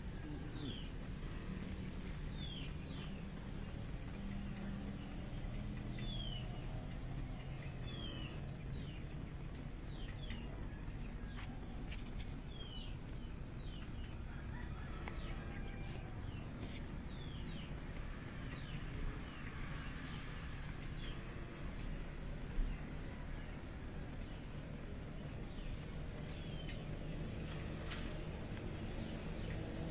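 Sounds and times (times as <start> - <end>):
birds chirping: 0.0 - 29.9
low background rumble: 0.0 - 29.9.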